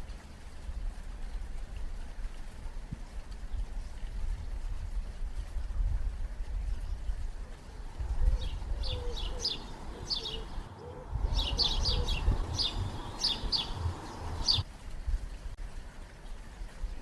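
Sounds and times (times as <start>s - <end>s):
low steady rumble: 0.1s - 16.1s
small birds chirping: 6.6s - 14.6s.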